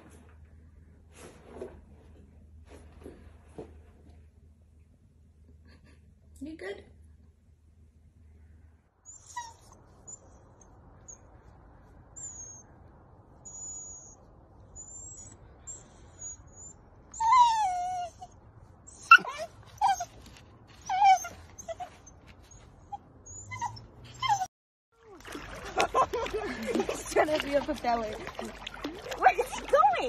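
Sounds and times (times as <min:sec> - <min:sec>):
dog whining: 0:09.1 - 0:11.4, 0:12.1 - 0:12.8, 0:13.4 - 0:20.2, 0:20.8 - 0:24.5.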